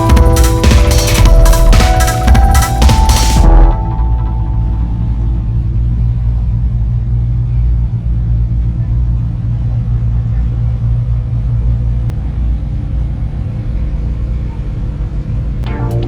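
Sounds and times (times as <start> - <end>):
car engine rumbling: 0.0 - 15.6.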